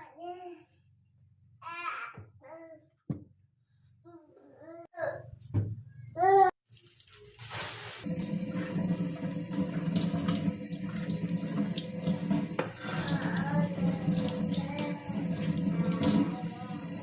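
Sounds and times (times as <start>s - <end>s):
water running from a tap: 6.7s - 17.0s.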